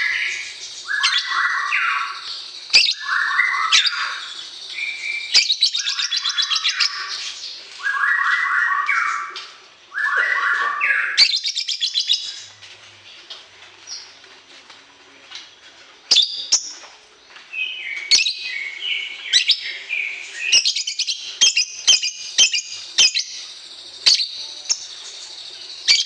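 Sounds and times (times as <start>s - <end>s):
songbird chattering song: 0.0s - 9.4s, 17.6s - 26.0s.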